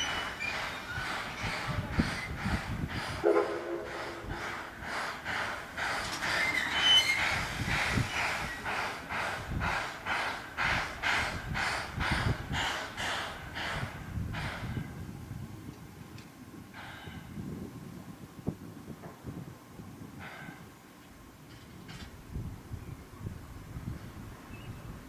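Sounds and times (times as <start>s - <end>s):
steam locomotive exhaust chuffing: 0.0s - 15.2s
high squeal: 6.3s - 7.4s.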